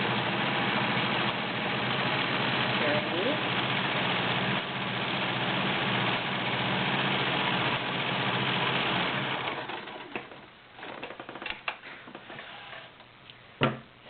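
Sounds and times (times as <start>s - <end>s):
sewing machine running: 0.0s - 10.5s.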